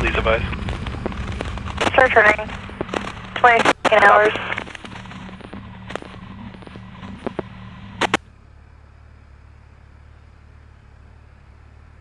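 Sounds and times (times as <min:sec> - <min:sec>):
radio static crackle and hum: 0:00.0 - 0:08.3
low background rumble: 0:00.0 - 0:12.0
radio squelch burst: 0:01.7 - 0:07.3.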